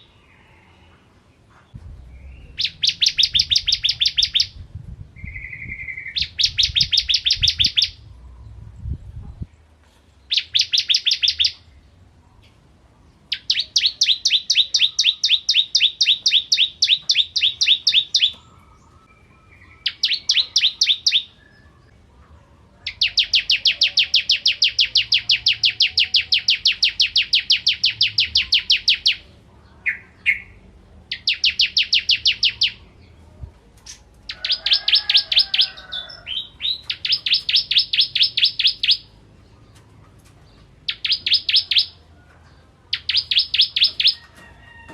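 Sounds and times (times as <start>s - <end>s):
bird singing rapid high notes: 2.1s - 4.6s, 5.2s - 8.0s, 10.3s - 11.6s, 13.3s - 21.6s, 36.4s - 39.2s, 40.8s - 42.0s, 42.9s - 44.2s.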